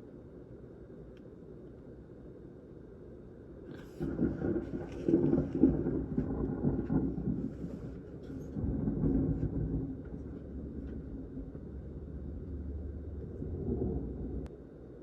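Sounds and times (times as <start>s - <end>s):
thunder rumbling: 3.8s - 14.5s.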